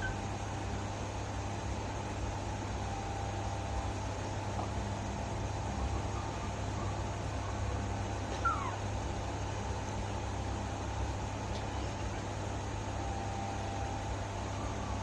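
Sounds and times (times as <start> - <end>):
baby monkey squeak: 8.4 - 8.8.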